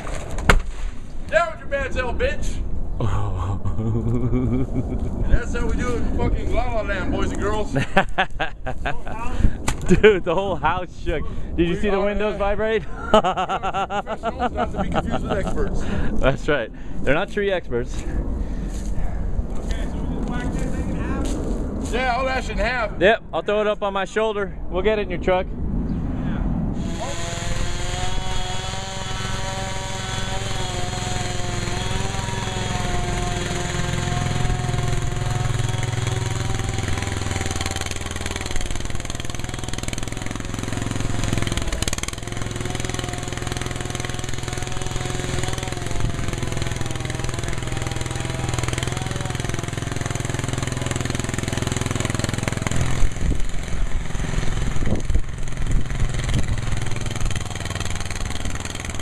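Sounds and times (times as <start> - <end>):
engine running: 3.0 - 5.7, 26.8 - 59.0.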